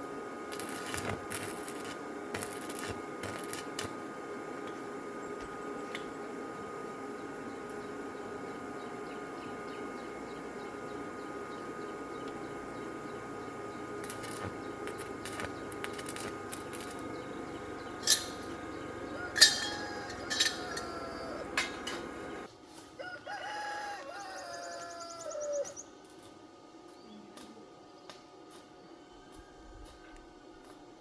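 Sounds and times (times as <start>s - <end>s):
steady background noise: 0.0s - 31.0s
rooster crowing: 0.5s - 3.9s, 14.0s - 16.9s, 18.0s - 25.8s.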